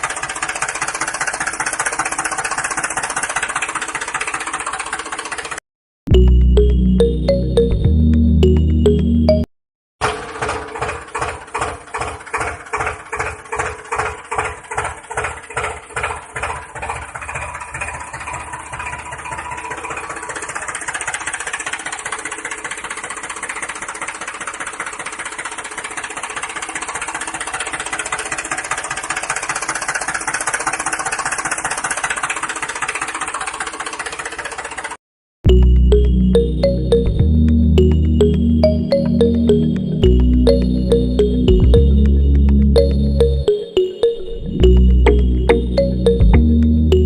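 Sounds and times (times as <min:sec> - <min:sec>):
small engine thumping: 0:10.0 - 0:35.0.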